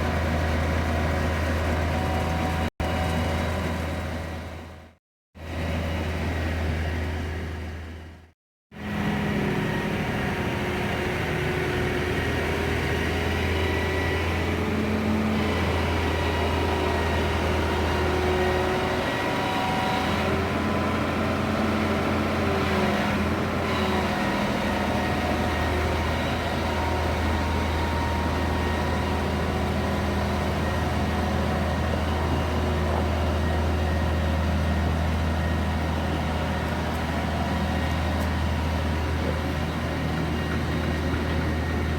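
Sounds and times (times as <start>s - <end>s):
lorry engine humming: 8.8s - 41.9s.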